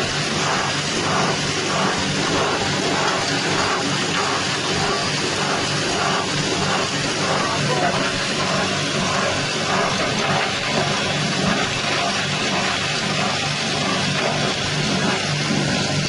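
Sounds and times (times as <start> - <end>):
engine hum: 0.0 - 16.0
grinding mill hissing din: 0.0 - 16.0.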